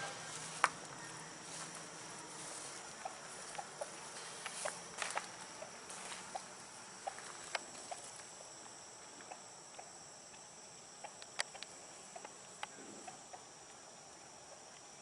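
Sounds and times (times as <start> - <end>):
turkeys clucking: 0.0 - 8.2
crickets chirping: 0.0 - 15.0.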